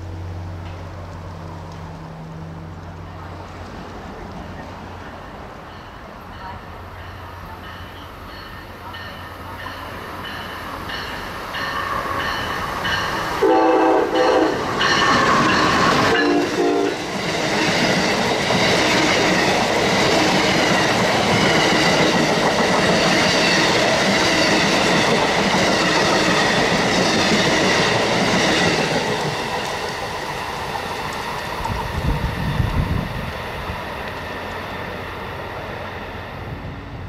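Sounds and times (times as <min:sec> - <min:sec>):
train wheel and rail noise: 0:00.0 - 0:37.0
locomotive horn blasts: 0:13.4 - 0:17.0.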